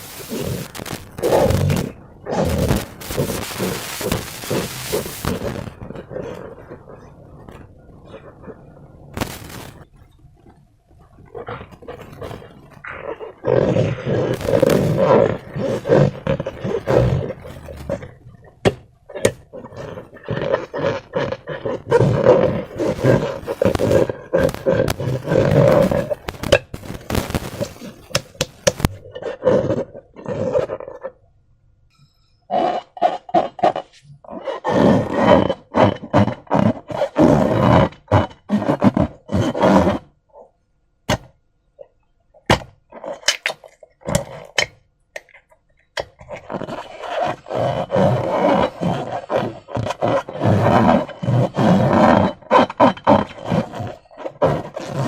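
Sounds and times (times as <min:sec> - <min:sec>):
slime squelching: 0:00.0 - 0:31.2, 0:42.3 - 0:55.0
balloon pops and clicks: 0:41.1 - 0:41.4.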